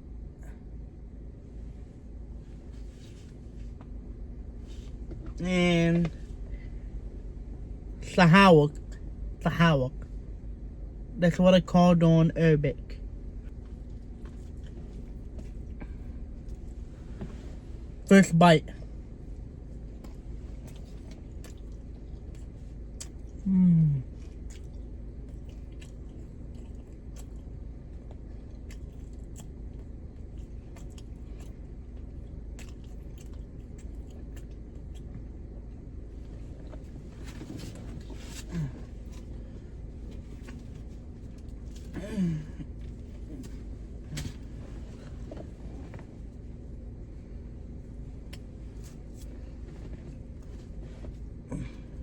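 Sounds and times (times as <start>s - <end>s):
steady low hum: 0.0s - 52.0s
person chewing food: 13.4s - 17.6s, 19.3s - 46.4s
person humming mm: 23.4s - 24.1s.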